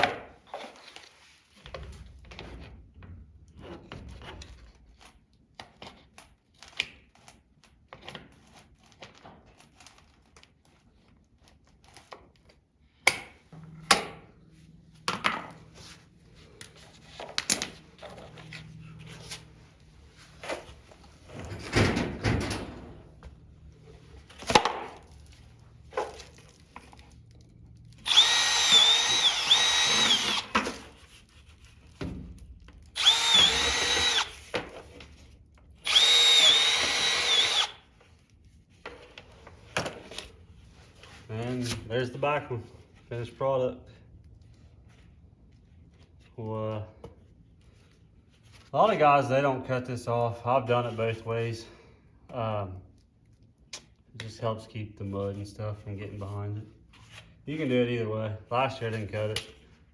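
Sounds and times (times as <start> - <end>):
power drill whining: 28.0 - 30.9, 33.0 - 34.6, 35.8 - 37.8.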